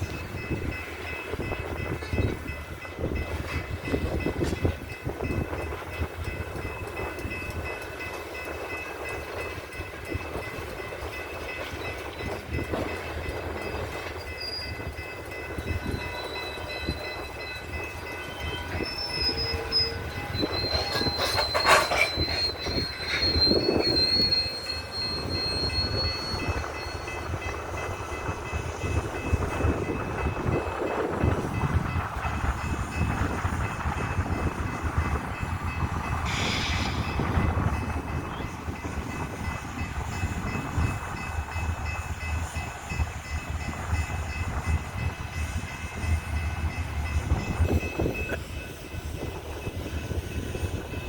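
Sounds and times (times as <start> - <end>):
train wheels rumbling and clattering: 0.0 - 51.0
high wheel squeal: 15.6 - 27.2, 36.2 - 37.2.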